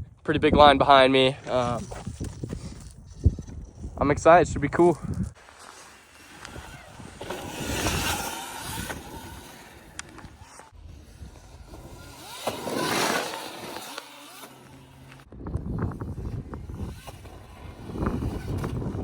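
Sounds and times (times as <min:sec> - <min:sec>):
electric dirt bikes riding past: 0:05.4 - 0:19.0.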